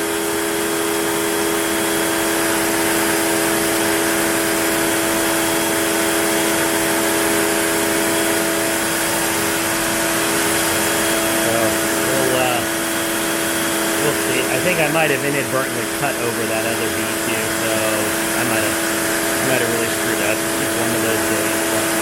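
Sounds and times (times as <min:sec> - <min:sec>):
router spindle cutting wood: 0:00.0 - 0:22.0.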